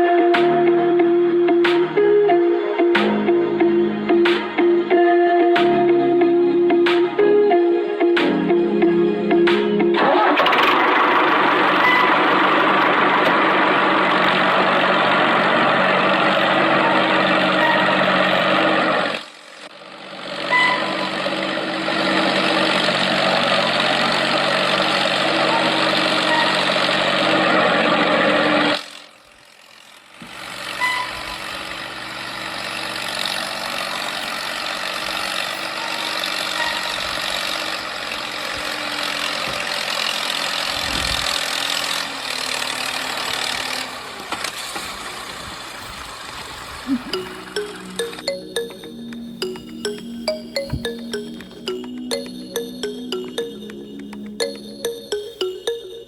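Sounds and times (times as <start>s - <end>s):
mini tractor engine running: 10.0s - 46.8s.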